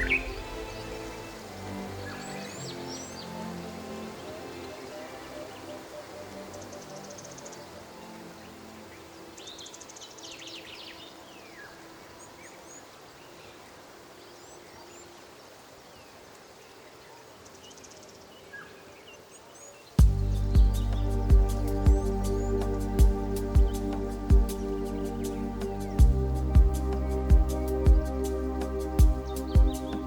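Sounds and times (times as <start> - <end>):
bird chirps: 0.0 - 1.4
soft held music tones: 0.0 - 30.0
loud music: 20.0 - 30.0.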